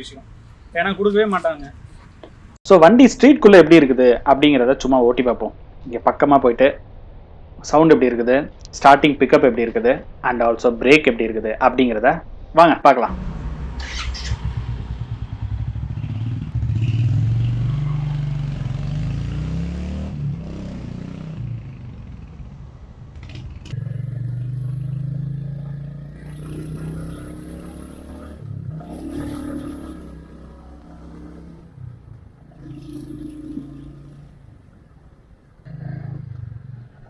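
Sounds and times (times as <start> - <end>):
motorcycle engine running: 13.1 - 37.0.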